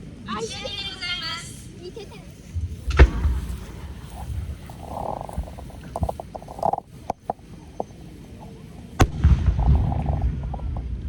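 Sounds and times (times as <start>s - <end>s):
fireworks cracking: 1.9s - 11.0s
loud firework bang: 2.8s - 6.1s, 9.0s - 10.5s.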